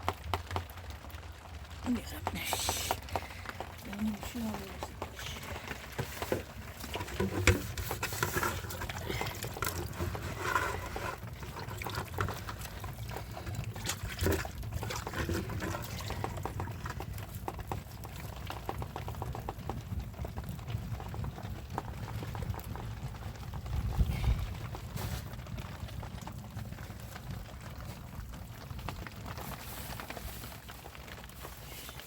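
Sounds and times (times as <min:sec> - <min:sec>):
water dripping: 0:00.0 - 0:20.8.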